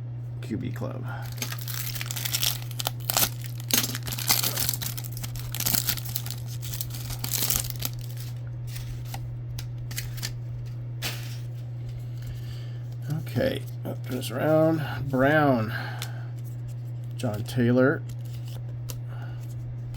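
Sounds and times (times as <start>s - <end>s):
foil wrapper tearing and crinkling: 1.2s - 9.2s.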